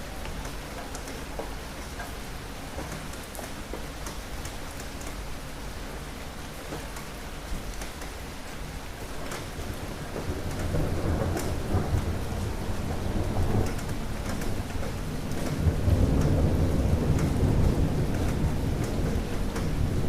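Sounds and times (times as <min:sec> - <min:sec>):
steady rain falling: 0:00.0 - 0:20.0
low thunder rumble: 0:09.6 - 0:20.0.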